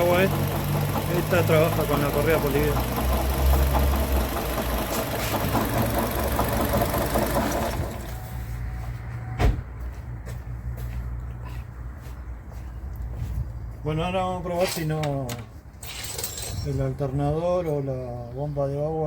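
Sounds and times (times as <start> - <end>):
car engine idling: 0.0 - 8.3.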